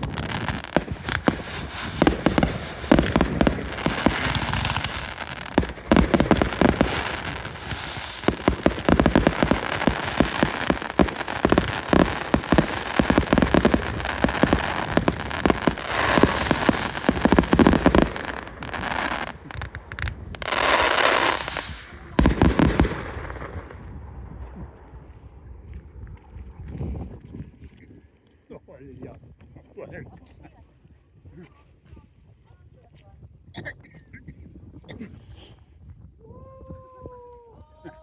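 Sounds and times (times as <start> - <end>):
fireworks bangs and crackles: 0.0 - 24.9.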